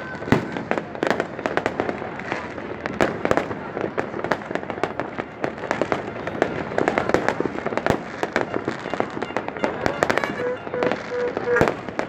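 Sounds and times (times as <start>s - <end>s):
fireworks bangs and pops: 0.0s - 12.0s
fireworks crackle: 0.0s - 12.0s.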